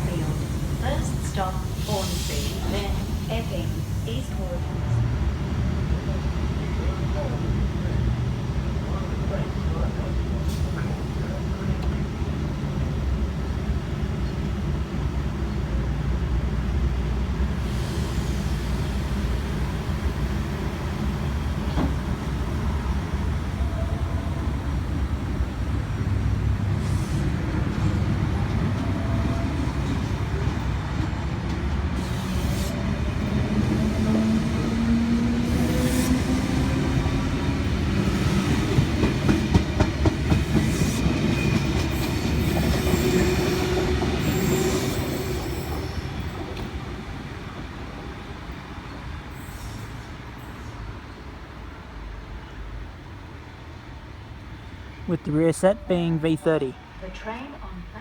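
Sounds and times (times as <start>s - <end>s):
train whine: 0.0s - 51.4s
train rumble and wheel clatter: 0.0s - 58.0s.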